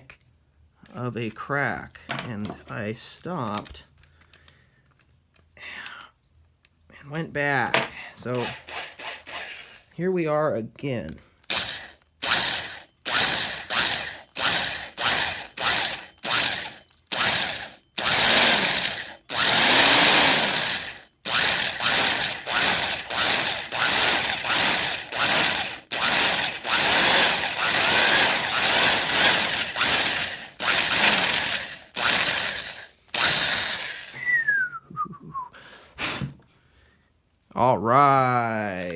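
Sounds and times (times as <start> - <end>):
electric drill drilling wood: 8.3 - 9.8, 11.5 - 34.2.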